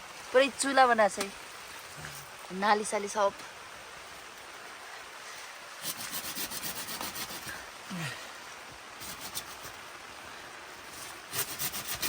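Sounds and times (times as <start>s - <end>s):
rain hiss: 0.0s - 12.0s
rasping scrape strokes: 5.8s - 7.6s, 9.0s - 9.8s, 10.9s - 12.0s.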